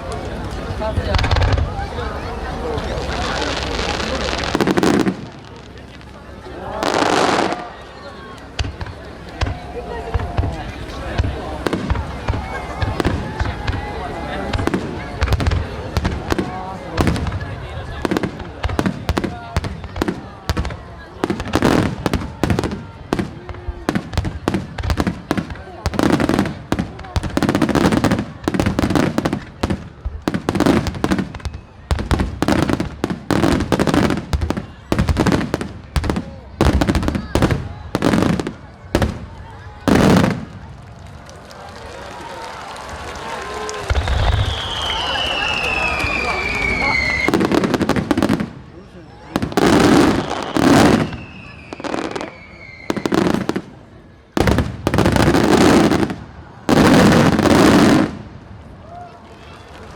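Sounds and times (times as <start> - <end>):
fireworks bangs and crackles: 0.0 - 59.9
falling whistle: 43.9 - 47.4, 51.0 - 53.1.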